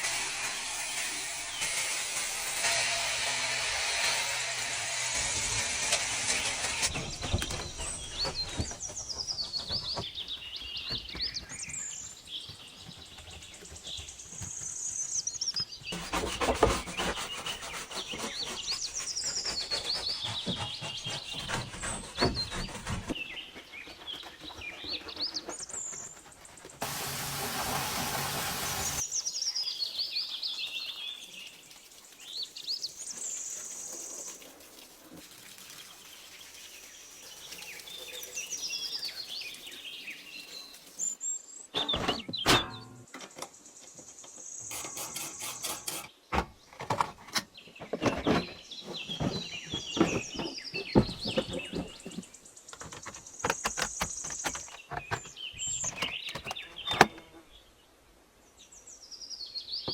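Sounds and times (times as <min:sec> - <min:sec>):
water spray hissing: 0:26.8 - 0:29.2, 0:31.0 - 0:41.2.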